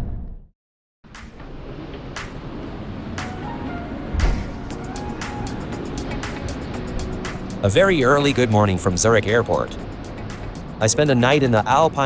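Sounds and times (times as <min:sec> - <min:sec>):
outdoor traffic hum: 0:01.1 - 0:12.0
deep heavy rumble: 0:02.8 - 0:05.4.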